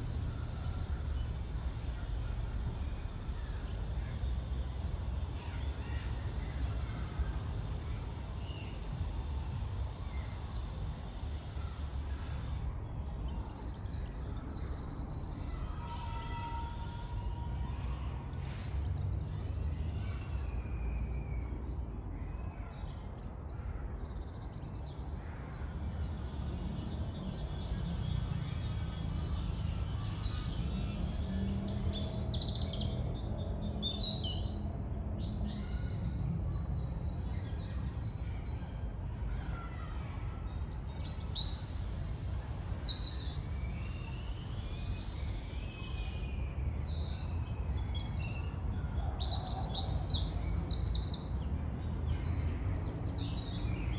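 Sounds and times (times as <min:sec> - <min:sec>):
birds singing and chirping: 0:24.9 - 0:35.6
distant traffic rumble: 0:25.0 - 0:42.8.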